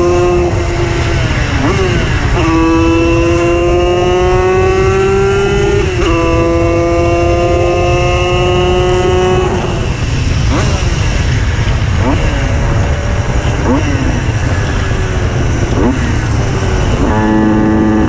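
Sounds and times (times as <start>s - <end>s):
two-stroke moped engine buzzing: 0.0s - 18.0s
wind rumble: 0.0s - 18.0s.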